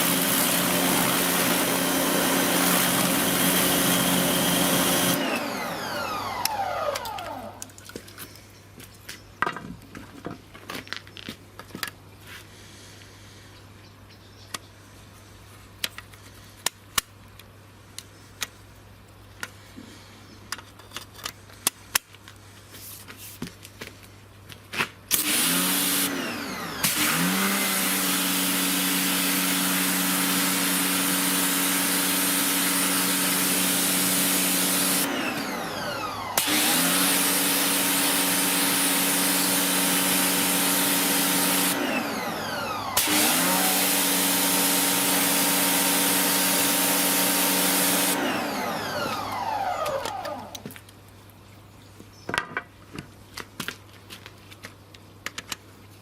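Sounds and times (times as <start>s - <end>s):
water jet hissing: 0.0s - 5.2s
pressure washer motor: 0.0s - 7.8s, 25.1s - 50.8s.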